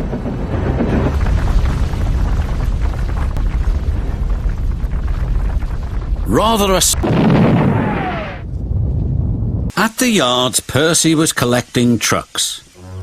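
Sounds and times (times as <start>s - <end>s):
explosion rumbling: 0.0s - 9.7s
short rising and falling cry: 7.0s - 8.7s.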